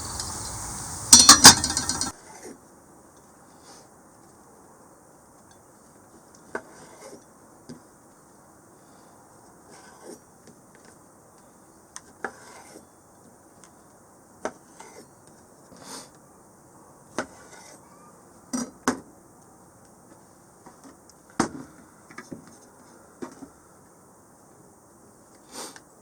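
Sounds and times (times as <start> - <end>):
metal cookware clinking: 1.1 - 2.1.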